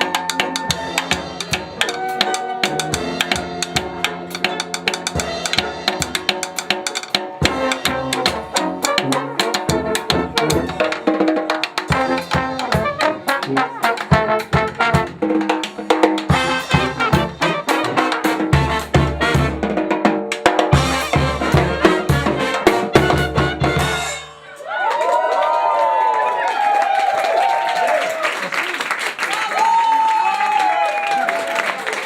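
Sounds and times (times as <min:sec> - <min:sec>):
busy drum beat: 0:00.0 - 0:24.3
brass band playing: 0:00.0 - 0:24.6.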